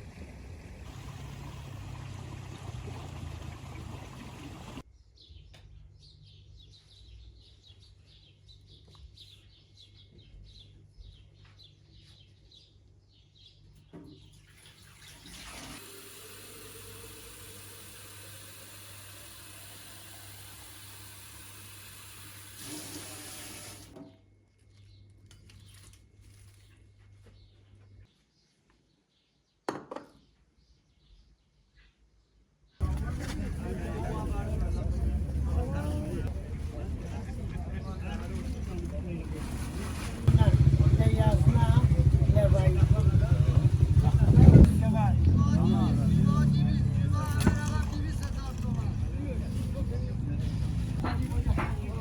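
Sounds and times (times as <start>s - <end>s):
tap water filling container: 0.9s - 4.8s, 14.4s - 24.0s
small birds chirping: 0.9s - 14.5s.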